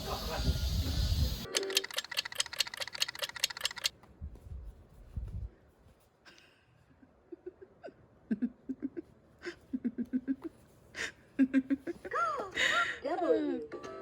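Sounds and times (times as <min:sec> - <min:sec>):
sharp clicks: 0:01.4 - 0:03.9.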